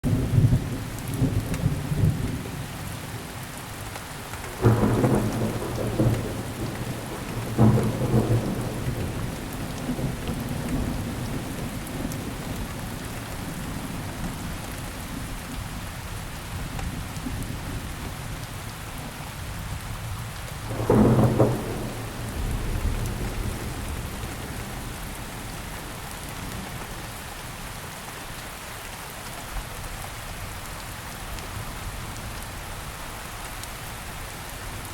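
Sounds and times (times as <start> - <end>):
rain hissing: 3.7 - 15.1, 20.5 - 28.0
thunder rumbling: 4.4 - 14.4, 20.6 - 26.9
sharp thunder peals: 20.7 - 25.2.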